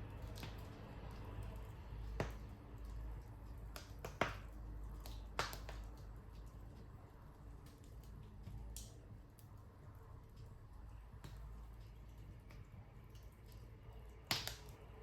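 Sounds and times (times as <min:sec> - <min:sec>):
wood fire crackling: 0:00.0 - 0:15.0
sharp pops of fire: 0:02.0 - 0:06.5, 0:11.1 - 0:15.0.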